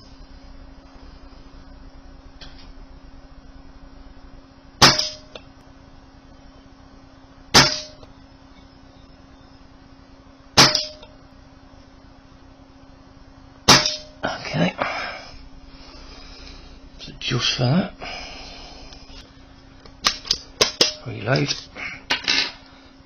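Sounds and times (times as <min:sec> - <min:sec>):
air rifle shots: 0:04.8 - 0:05.3, 0:07.5 - 0:08.0, 0:10.6 - 0:11.0, 0:13.7 - 0:14.2.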